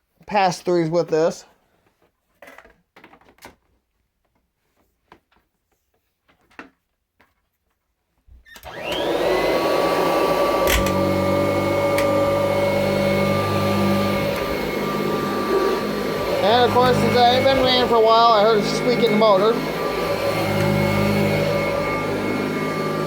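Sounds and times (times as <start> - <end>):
vacuum cleaner motor whining: 8.5 - 23.0.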